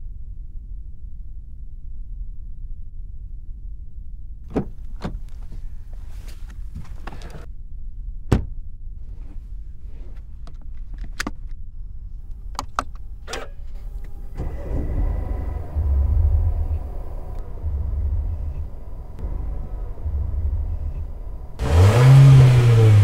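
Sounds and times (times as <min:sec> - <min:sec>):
loud thump: 0:04.5 - 0:05.2, 0:08.3 - 0:08.6, 0:15.4 - 0:21.6
car engine starting and idling: 0:12.1 - 0:23.0.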